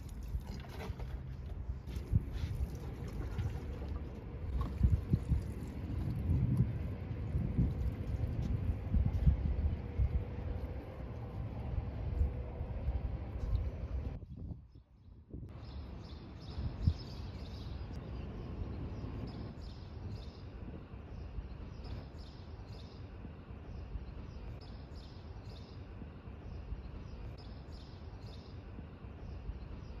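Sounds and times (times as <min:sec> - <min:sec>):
low outdoor rumble: 0:00.0 - 0:14.2.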